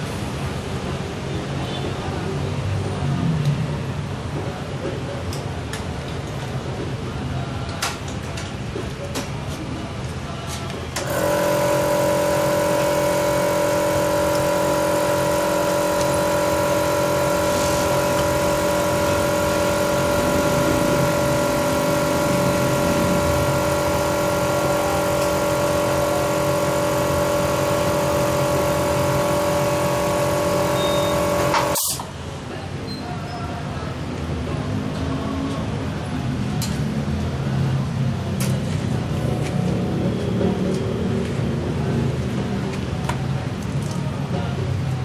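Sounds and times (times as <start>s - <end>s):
car engine running: 11.1s - 31.8s.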